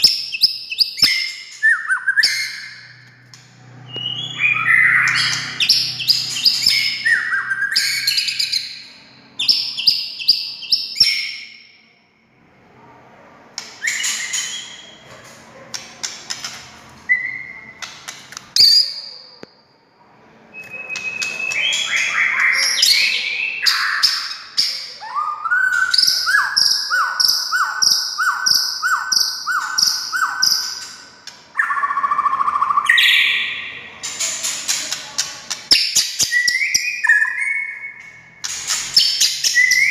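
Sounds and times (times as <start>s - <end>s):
bird singing trills and whistles: 0.0s - 3.0s, 3.8s - 11.8s, 13.8s - 15.0s, 17.1s - 17.9s, 20.5s - 34.2s, 35.7s - 39.9s.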